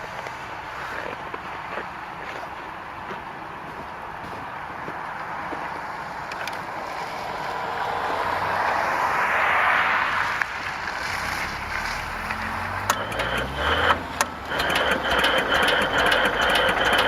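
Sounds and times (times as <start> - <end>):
faint small tractor engine: 10.8 - 17.0.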